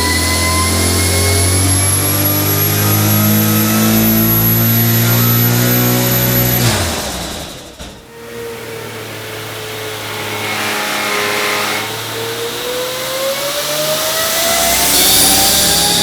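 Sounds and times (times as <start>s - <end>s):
high turbo whine: 0.0s - 16.0s
car engine revving under load: 0.2s - 16.0s.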